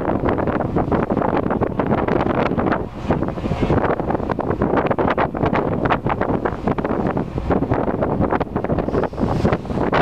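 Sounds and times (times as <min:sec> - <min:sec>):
wind buffeting microphone: 0:00.0 - 0:10.0
hissing rush: 0:08.7 - 0:10.0.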